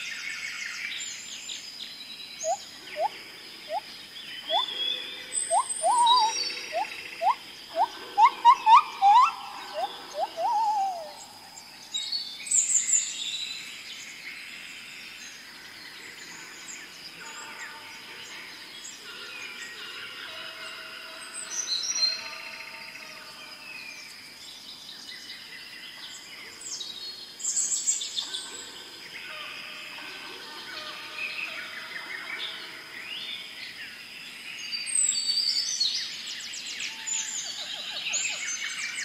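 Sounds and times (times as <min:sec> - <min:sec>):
high bird chirps: 0:02.4 - 0:11.3
rising whistled bird notes: 0:04.4 - 0:11.3
thin steady high tone: 0:05.4 - 0:11.6.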